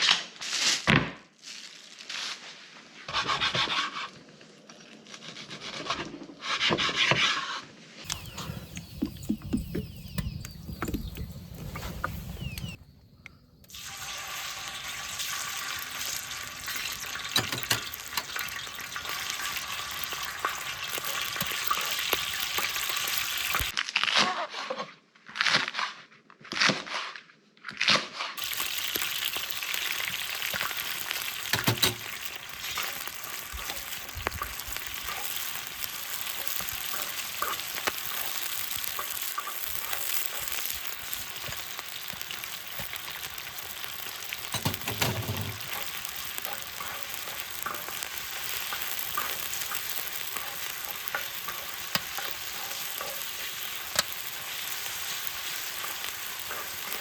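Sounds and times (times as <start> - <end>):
food sizzling on a metal lid: 8.0 - 12.9, 13.6 - 23.8, 28.4 - 57.0.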